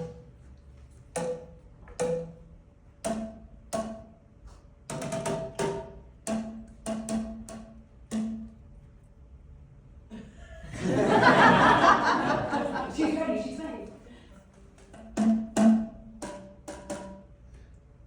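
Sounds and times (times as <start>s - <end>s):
plastic tubes struck: 1.2s - 2.4s, 4.9s - 8.5s.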